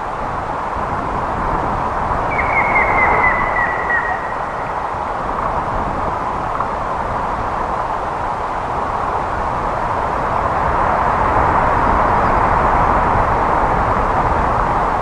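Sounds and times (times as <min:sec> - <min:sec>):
rushing background noise: 0:00.0 - 0:15.0
woodpecker whistled calls: 0:02.3 - 0:04.9.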